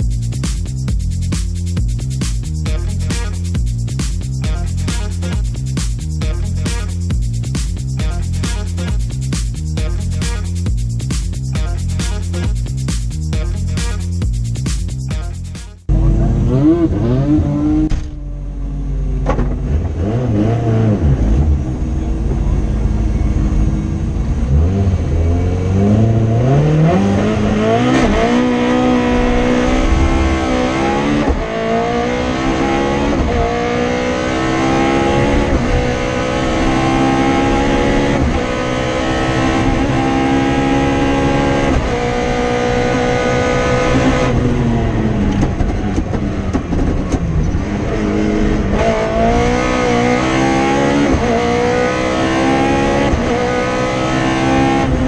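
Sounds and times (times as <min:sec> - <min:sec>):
car engine revving hard: 0:15.9 - 0:17.9, 0:19.4 - 0:22.2, 0:24.3 - 0:55.0.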